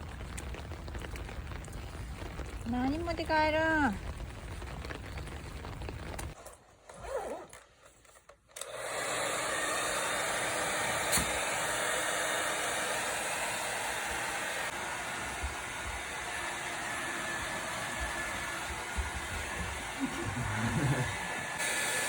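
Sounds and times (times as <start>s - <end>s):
hair dryer blowing: 8.6s - 22.0s.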